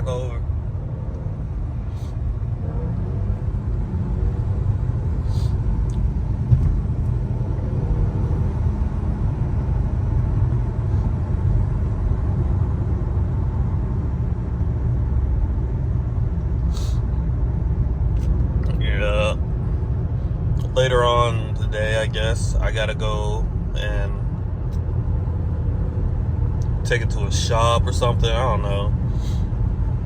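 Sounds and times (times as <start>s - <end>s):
person talking: 0.0s - 0.4s, 18.7s - 19.4s, 20.6s - 24.2s, 26.9s - 28.9s
car engine and exhaust rumble: 0.0s - 30.0s.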